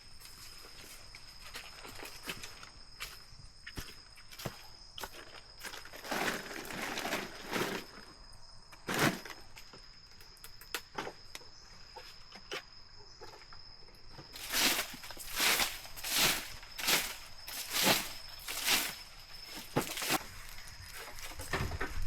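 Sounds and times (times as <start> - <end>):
crunching in leaf litter: 4.4 - 8.0, 14.4 - 21.4.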